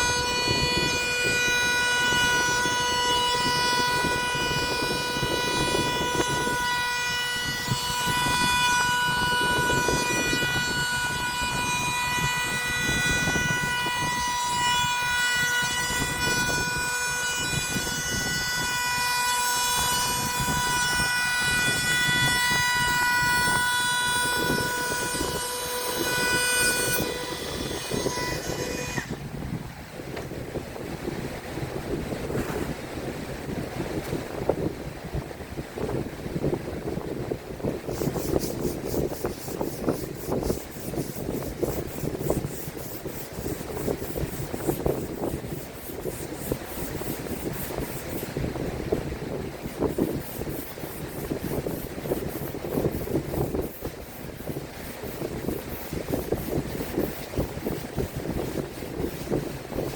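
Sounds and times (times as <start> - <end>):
power tool whining on wood: 0.0 - 29.2.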